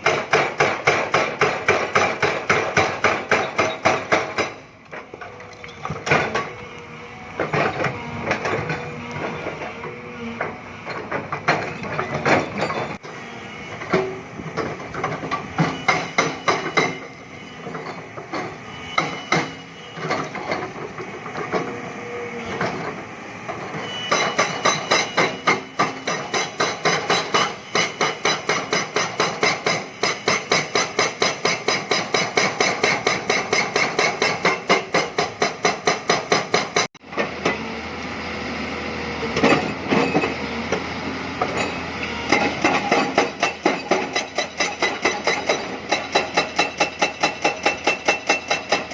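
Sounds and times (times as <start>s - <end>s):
metallic clanks and knocks: 0.0s - 6.6s, 10.4s - 13.0s, 39.3s - 48.9s
diesel engine: 0.0s - 30.2s, 32.5s - 48.9s.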